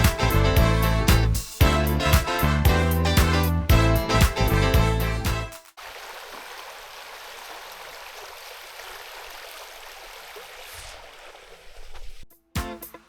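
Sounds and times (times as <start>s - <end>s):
stream running: 5.6s - 12.3s.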